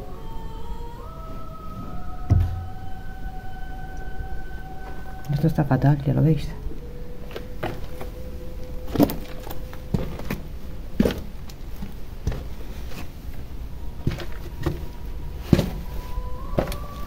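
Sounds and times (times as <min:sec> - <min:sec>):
footsteps on stone steps: 0:08.9 - 0:13.3, 0:14.0 - 0:15.9.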